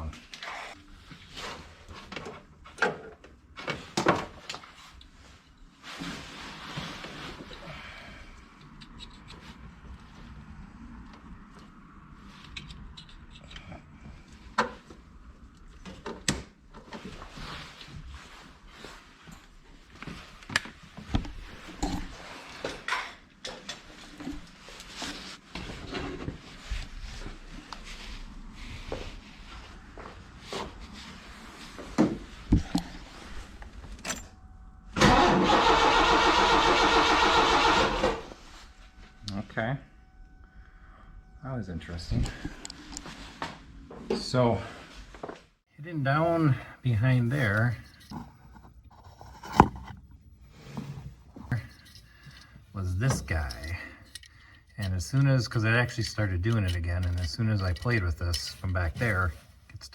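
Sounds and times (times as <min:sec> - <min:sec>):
handling and rustling: 0:01.0 - 0:07.7, 0:42.4 - 0:59.9
engine starter cranking: 0:35.0 - 0:38.3.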